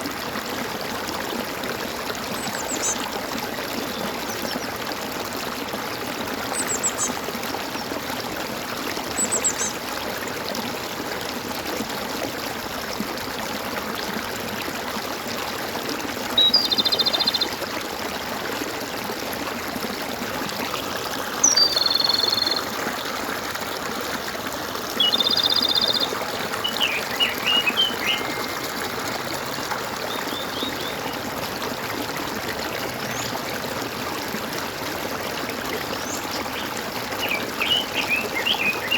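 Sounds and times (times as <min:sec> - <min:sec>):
stream gurgling: 0:00.0 - 0:38.9
birds chirping and trilling: 0:25.0 - 0:28.6, 0:36.0 - 0:38.9.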